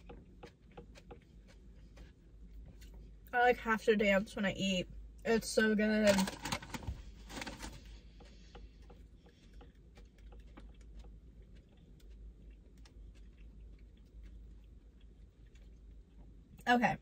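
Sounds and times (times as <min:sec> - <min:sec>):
chewing with mouth clicks: 0:00.0 - 0:03.3, 0:07.8 - 0:16.6.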